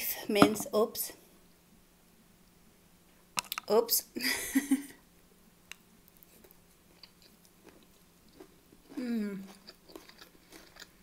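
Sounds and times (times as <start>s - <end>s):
chewing with mouth clicks: 6.3s - 11.0s.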